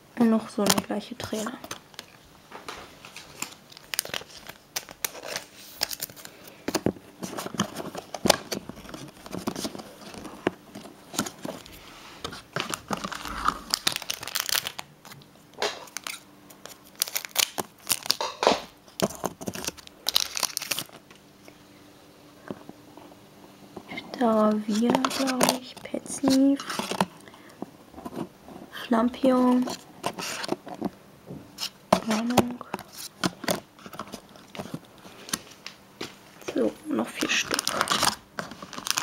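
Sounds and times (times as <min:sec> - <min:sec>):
foil wrapper tearing and crinkling: 0:03.1 - 0:21.0, 0:24.5 - 0:27.2, 0:31.6 - 0:35.5, 0:37.1 - 0:39.0.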